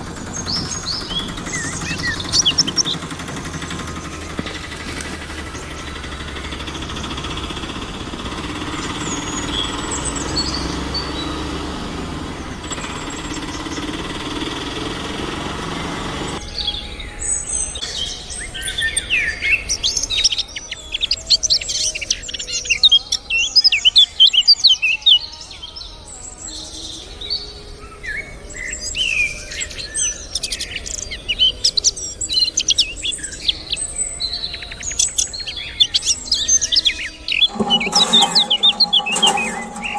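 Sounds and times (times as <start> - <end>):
birds chirping and twittering: 0.0 - 39.9
low hum: 37.5 - 39.9.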